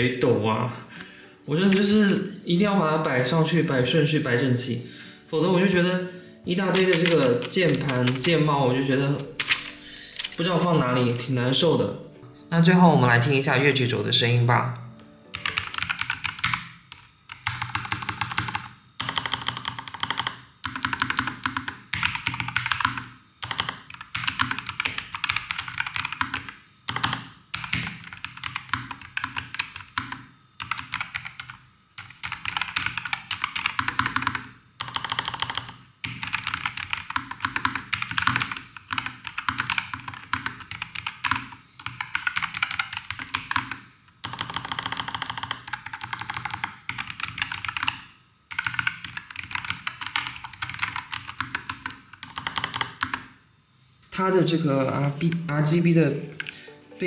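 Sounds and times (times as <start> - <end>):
mechanical keyboard typing: 6.5 - 10.5, 15.3 - 53.3.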